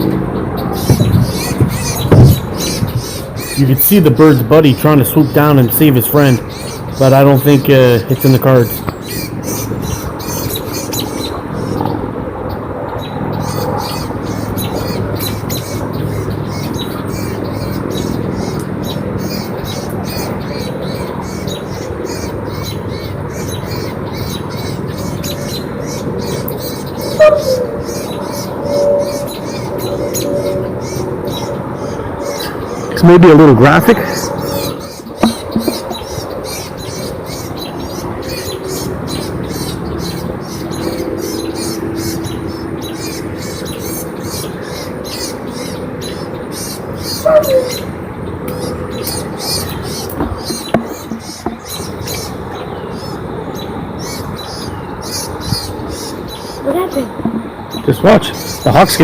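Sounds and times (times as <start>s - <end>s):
bird chirping: 0.0s - 59.0s
bird call falling in pitch: 27.1s - 30.2s, 47.2s - 47.9s.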